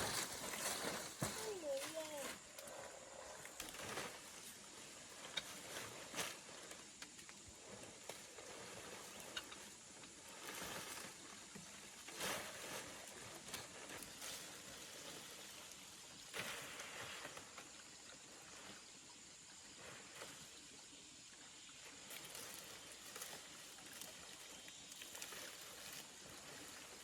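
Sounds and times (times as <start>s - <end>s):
faint outdoor background: 0.0s - 12.2s.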